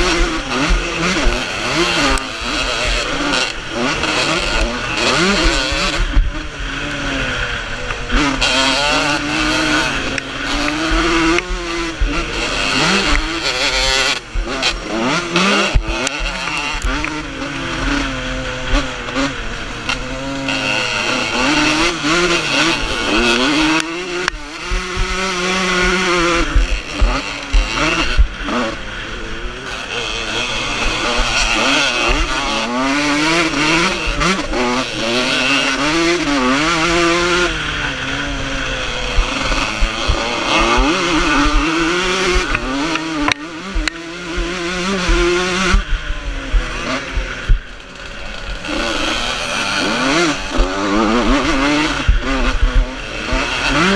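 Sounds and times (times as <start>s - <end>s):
motorcycle engines revving: 0.0s - 53.9s.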